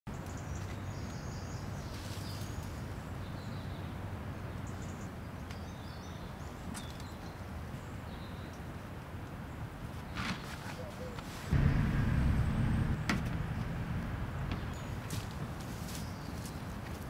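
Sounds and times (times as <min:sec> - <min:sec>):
low rumble: 0:11.5 - 0:15.6.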